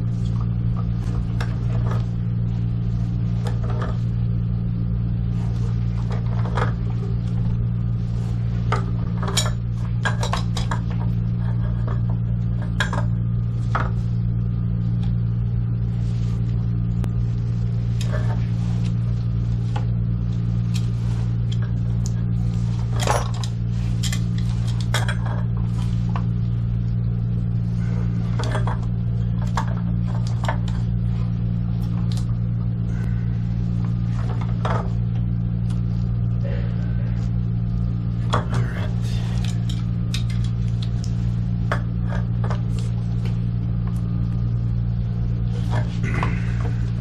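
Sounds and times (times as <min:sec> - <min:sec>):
low machine hum: 0:00.0 - 0:47.0
tools and pipe fittings clinking: 0:08.8 - 0:13.1.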